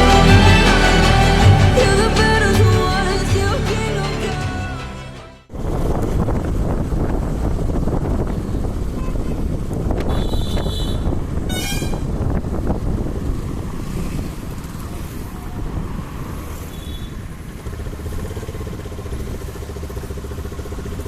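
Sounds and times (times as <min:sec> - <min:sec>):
wind and road rumble: 0:05.5 - 0:18.6.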